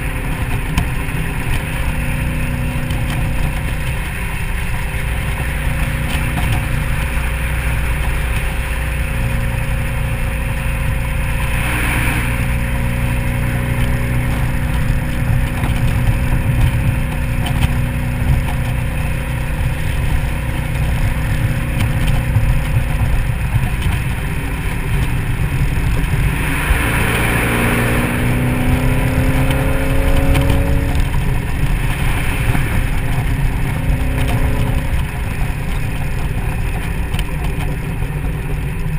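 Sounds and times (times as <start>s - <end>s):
car engine cruising: 0.0s - 38.9s
road noise: 0.0s - 38.9s
wind rumble: 0.0s - 38.9s
rushing noise: 10.2s - 17.1s, 18.9s - 37.2s.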